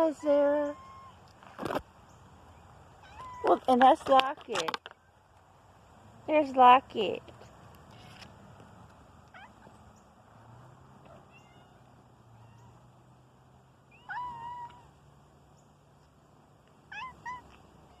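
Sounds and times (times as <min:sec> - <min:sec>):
kittens meowing: 0:00.2 - 0:01.2, 0:03.0 - 0:03.6, 0:11.1 - 0:12.8, 0:13.9 - 0:14.9, 0:16.9 - 0:18.0.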